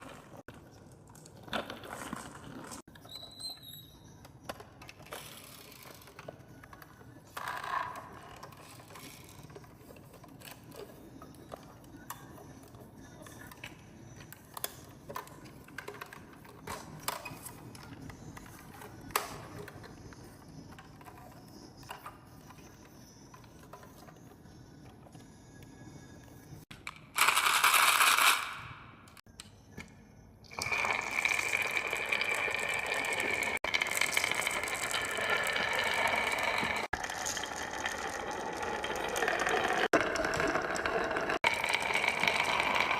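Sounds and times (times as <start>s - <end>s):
marbles rolling on wooden track: 27.2s - 28.6s, 30.6s - 42.9s
marbles clicking on wood: 30.7s - 42.9s.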